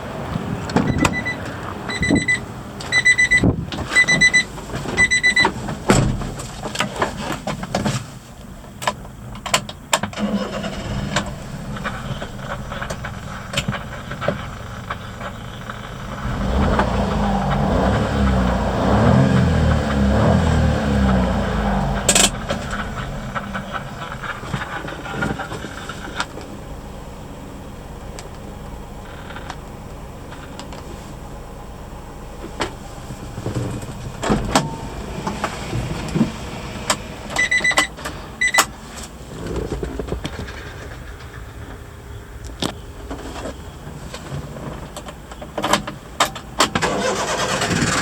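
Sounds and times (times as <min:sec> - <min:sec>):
short high beeps: 0:00.9 - 0:04.4, 0:05.0 - 0:05.5
truck engine revving and idling: 0:10.2 - 0:37.5, 0:46.9 - 0:48.0.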